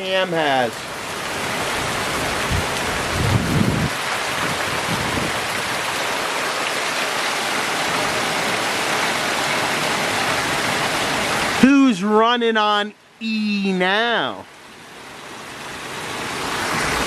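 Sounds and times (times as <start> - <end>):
heavy rain falling: 0.0 - 11.9
low rumble: 2.6 - 4.0.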